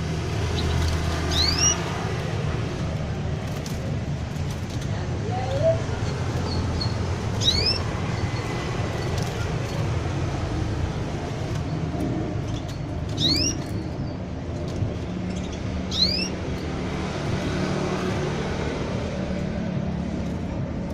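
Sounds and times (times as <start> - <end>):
canary chirps: 0.0 - 3.8, 5.5 - 10.6, 11.3 - 18.8.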